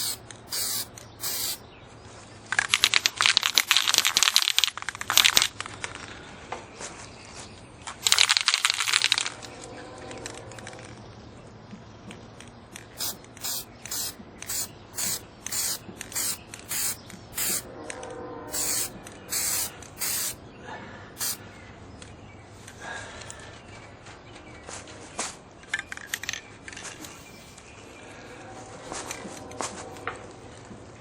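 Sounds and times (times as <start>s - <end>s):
aerosol spray can hissing: 0.0s - 1.6s, 13.0s - 17.7s, 18.5s - 20.4s, 21.2s - 21.4s.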